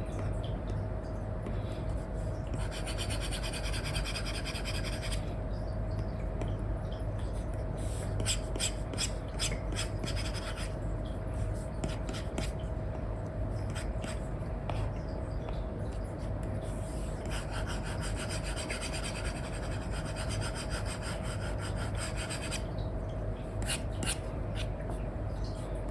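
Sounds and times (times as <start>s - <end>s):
faint steady hum: 0.0s - 25.9s
stylus scratching on tablet screen: 2.5s - 5.2s, 8.2s - 10.8s, 11.8s - 12.6s, 16.7s - 22.6s, 23.6s - 24.7s.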